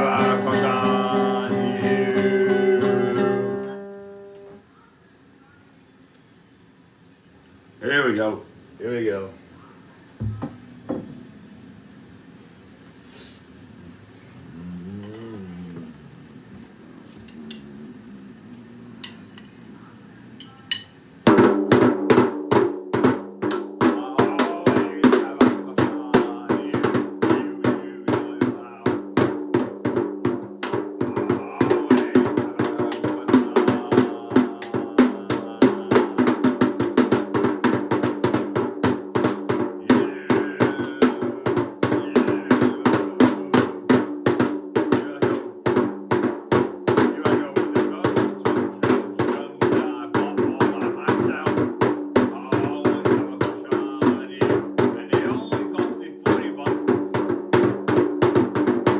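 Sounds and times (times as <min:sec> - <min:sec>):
music with fast drum beat: 0:00.0 - 0:03.6, 0:20.7 - 0:58.9.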